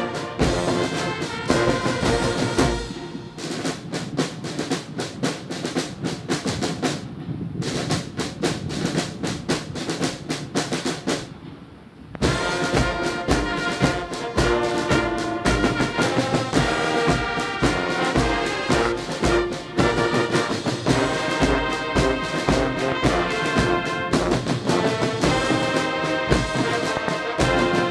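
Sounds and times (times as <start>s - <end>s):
brass band playing: 0.0s - 4.9s, 12.2s - 27.9s
quick snare drum strokes: 0.0s - 11.6s, 12.2s - 27.9s.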